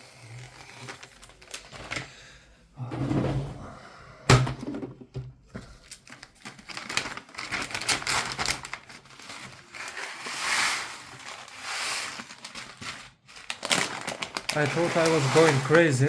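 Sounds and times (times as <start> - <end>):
plastic bag crinkling: 0.4 - 2.0, 5.8 - 16.0.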